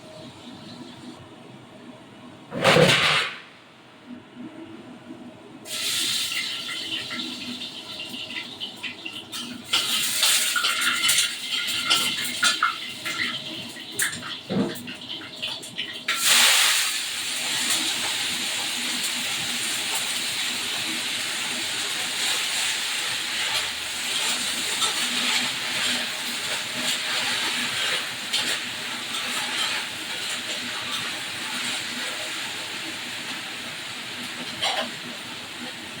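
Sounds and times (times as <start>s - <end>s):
food frying in hot oil: 5.7s - 36.0s.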